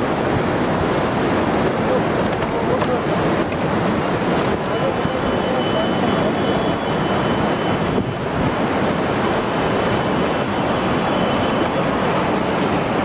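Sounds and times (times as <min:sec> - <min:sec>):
rushing floodwater roar: 0:00.0 - 0:13.0
wind buffeting microphone: 0:06.2 - 0:13.0.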